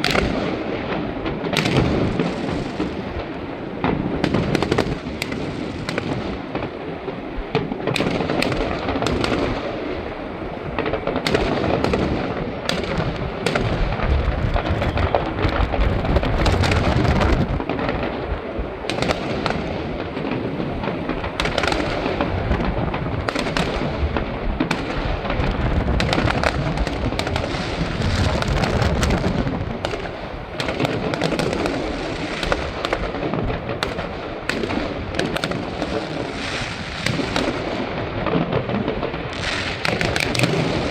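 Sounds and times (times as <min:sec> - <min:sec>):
fireworks booming: 0:00.0 - 0:40.9
fireworks crackling: 0:00.0 - 0:40.9.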